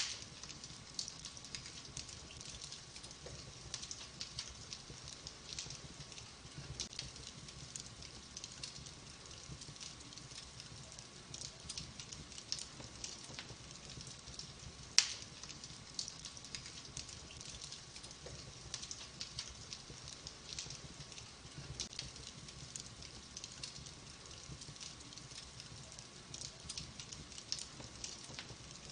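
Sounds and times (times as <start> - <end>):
loud pop from fire: 0.0 - 0.3, 15.0 - 15.3
wood fire crackling: 0.0 - 28.9.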